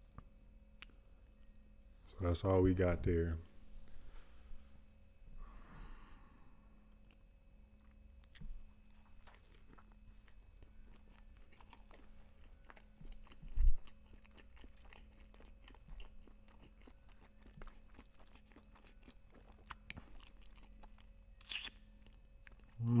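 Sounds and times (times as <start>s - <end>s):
biting and chewing: 6.9s - 22.8s.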